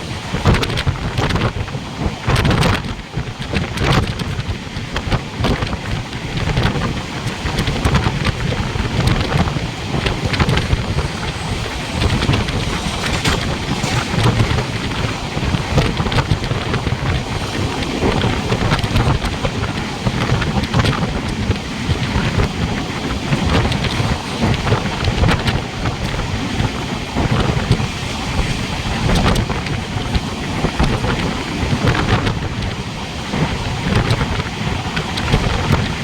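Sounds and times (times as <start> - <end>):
wind buffeting microphone: 0.0 - 36.0
loud rushing rumble: 7.5 - 26.0.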